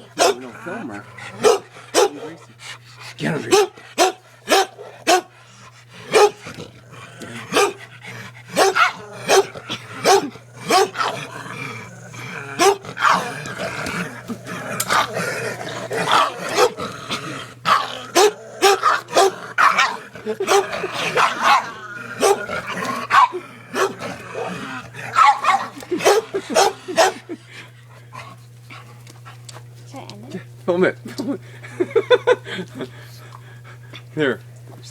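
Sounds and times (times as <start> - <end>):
dog barking excitedly: 0.0 - 0.5, 1.3 - 2.4, 3.4 - 5.4, 6.0 - 6.6, 7.4 - 7.9, 8.5 - 11.3, 12.6 - 13.4, 15.9 - 16.8, 17.7 - 27.3
dog growling: 0.0 - 4.0, 4.7 - 29.5.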